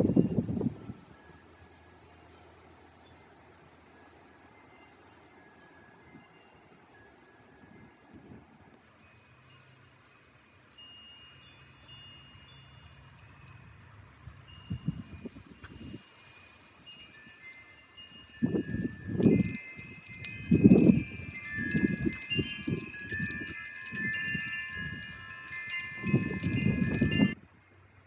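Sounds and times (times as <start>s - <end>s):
wind buffeting microphone: 0.0s - 1.1s, 18.2s - 27.4s
wind chimes jangling: 8.8s - 27.8s.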